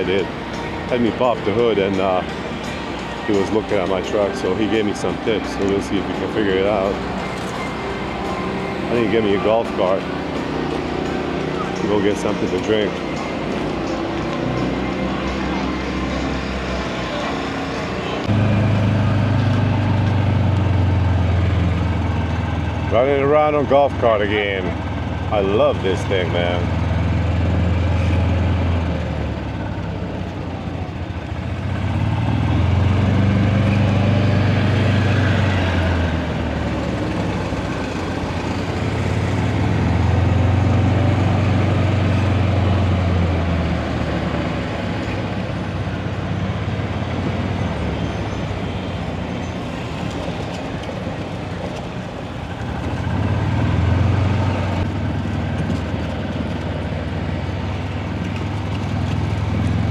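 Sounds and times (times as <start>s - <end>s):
golf cart rumble: 0.0s - 59.9s.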